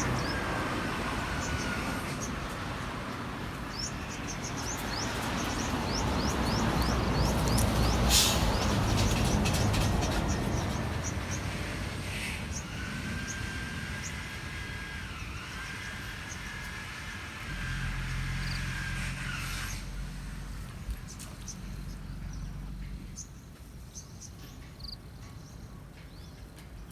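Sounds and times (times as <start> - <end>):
motor vehicle passing: 0.0 - 23.1
small birds chirping: 3.6 - 11.6.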